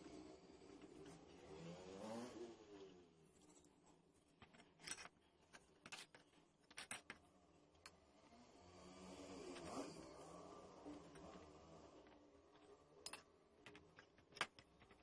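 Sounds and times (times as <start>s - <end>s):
small motor whirring: 8.3s - 12.1s.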